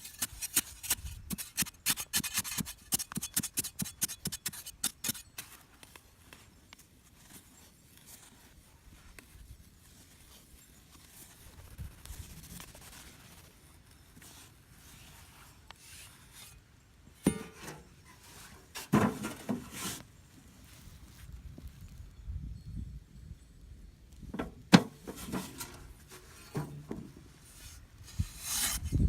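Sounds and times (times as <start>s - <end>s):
knocking and scraping burst: 24.4s - 27.2s
scraping and rubbing by hand: 25.0s - 29.0s.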